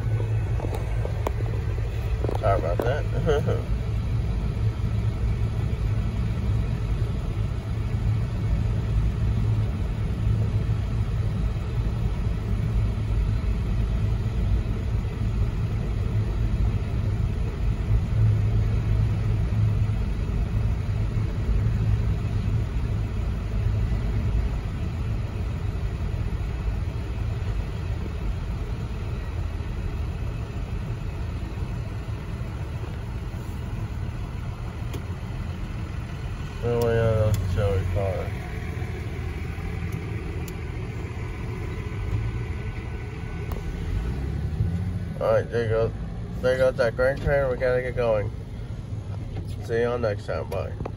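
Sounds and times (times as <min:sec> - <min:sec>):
freight train rumble: 0:00.0 - 0:06.2.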